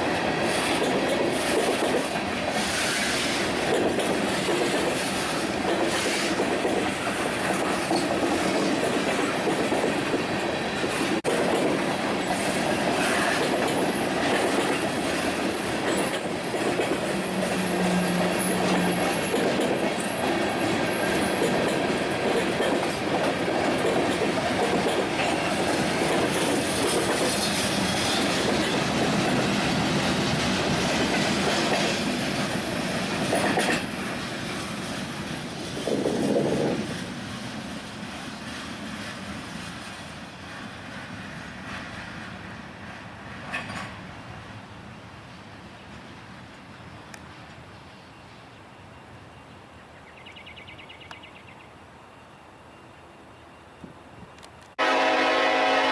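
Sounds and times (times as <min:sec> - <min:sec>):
train wheels rumbling and clattering: 0:00.0 - 0:48.6
high-pitched wheel squeal: 0:14.9 - 0:19.4.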